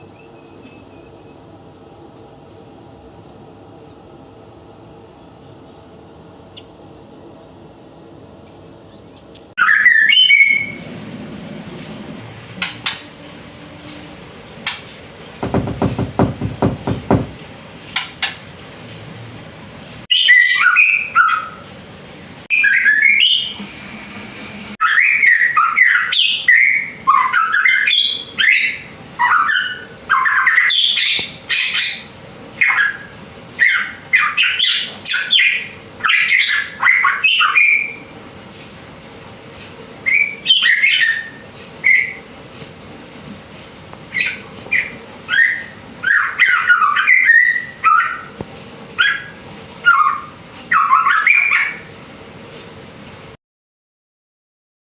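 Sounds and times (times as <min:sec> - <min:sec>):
bird singing whistled phrases: 0:08.9 - 0:10.8, 0:20.1 - 0:21.6, 0:22.5 - 0:23.6
low rapid rattle: 0:14.7 - 0:17.6.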